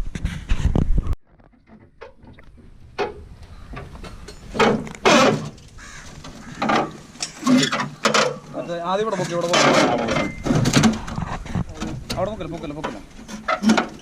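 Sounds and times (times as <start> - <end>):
crow cawing: 5.8 - 7.1.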